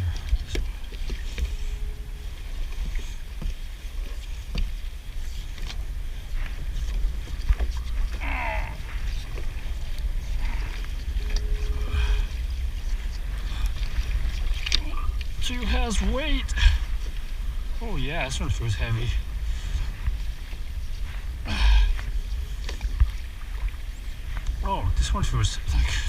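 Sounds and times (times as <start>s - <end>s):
wind on microphone: 0.0s - 26.0s
wavering squeak: 10.2s - 14.0s.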